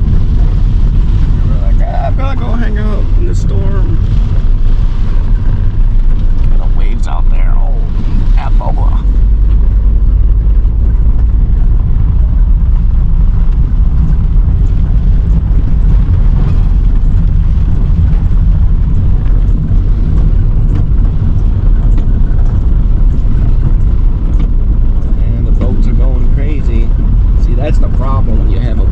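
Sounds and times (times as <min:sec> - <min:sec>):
car driving rumble: 0:00.0 - 0:28.9
road and wind noise: 0:00.0 - 0:28.9.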